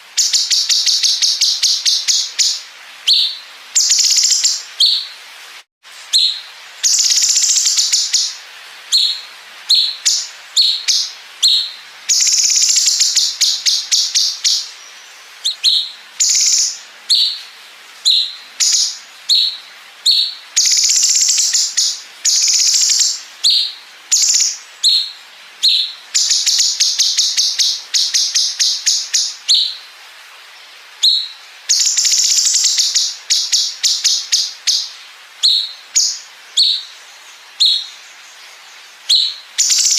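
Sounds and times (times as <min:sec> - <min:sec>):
bird singing with rattling trills: 0:15.4 - 0:17.4, 0:18.0 - 0:29.8, 0:39.1 - 0:39.9.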